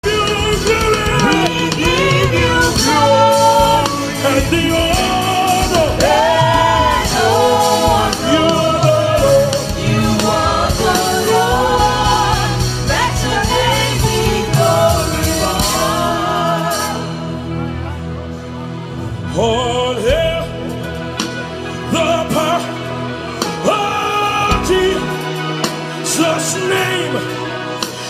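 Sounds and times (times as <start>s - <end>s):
person singing: 0.0s - 17.0s
keyboard and bass accompaniment: 0.0s - 28.0s.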